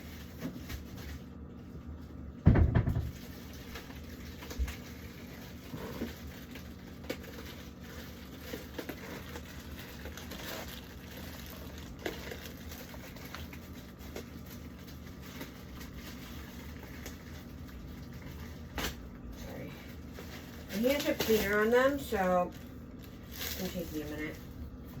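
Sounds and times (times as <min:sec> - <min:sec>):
plastic drawer knocks and clicks: 0:02.5 - 0:03.2.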